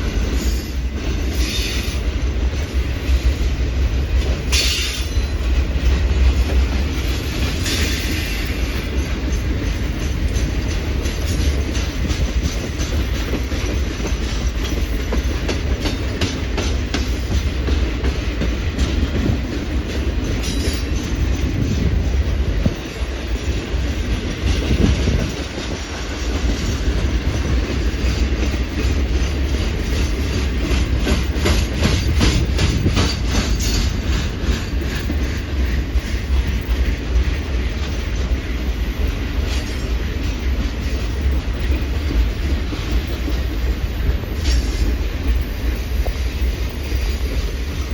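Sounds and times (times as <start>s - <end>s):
train rumble: 0.0s - 47.9s
wheels clicking over rail joints: 0.0s - 47.9s.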